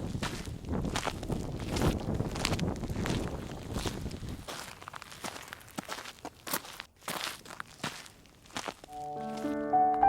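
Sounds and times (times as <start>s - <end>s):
wind rumble on microphone: 0.0s - 4.6s
footsteps walking: 0.2s - 10.0s.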